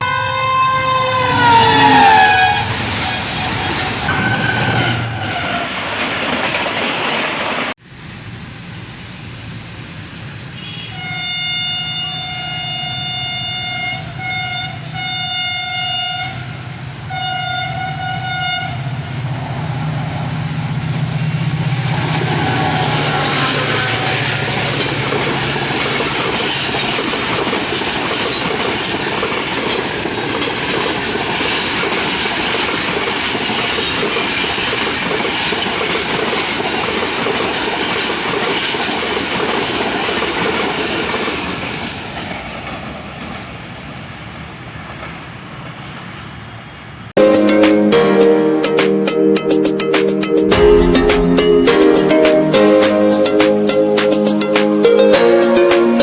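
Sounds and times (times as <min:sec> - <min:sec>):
locomotive horn blasts: 0:00.0 - 0:04.4, 0:10.6 - 0:18.8
train coaches rushing by: 0:00.4 - 0:56.0
wheels clacking over rail joints: 0:04.0 - 0:07.8, 0:20.7 - 0:43.7
locomotive engine drone: 0:18.8 - 0:31.5.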